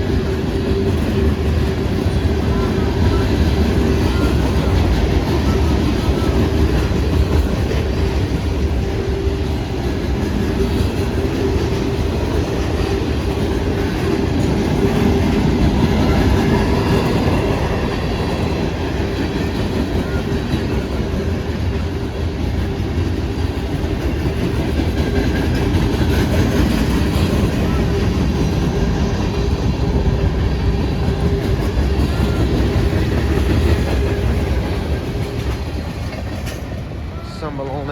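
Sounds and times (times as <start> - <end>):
train wheels clattering on rails: 0.0 - 37.9.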